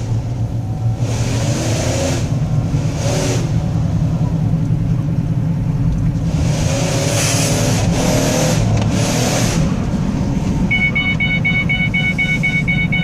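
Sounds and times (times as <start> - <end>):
car engine revving hard: 1.0 - 3.7, 6.2 - 9.8.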